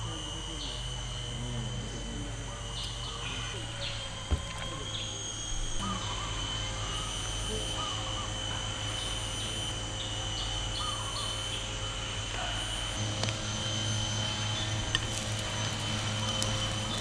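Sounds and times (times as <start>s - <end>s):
high insect drone: 0.0s - 17.0s
bird chirps: 9.0s - 12.1s.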